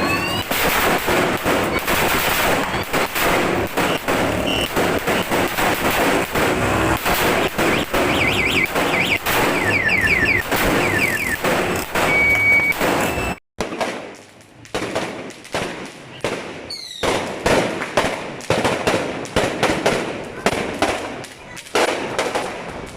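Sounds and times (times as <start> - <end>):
firecracker string crackling bangs: 0.0 - 22.9
high chirping tone: 7.6 - 11.4.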